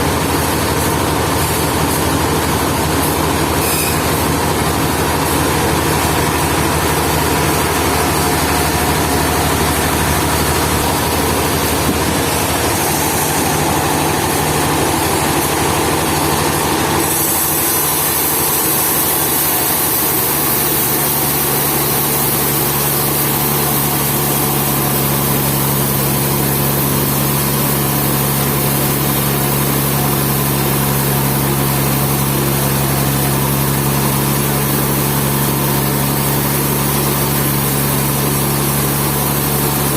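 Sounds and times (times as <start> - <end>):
engine running: 0.0 - 39.9
steady low hum: 4.2 - 17.5.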